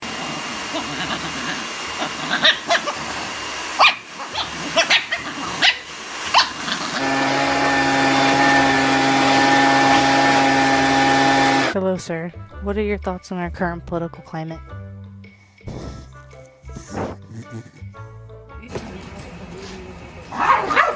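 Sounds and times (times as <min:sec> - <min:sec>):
steady motor hum: 0:00.0 - 0:11.8
dog barking: 0:00.7 - 0:07.0, 0:20.3 - 0:20.9.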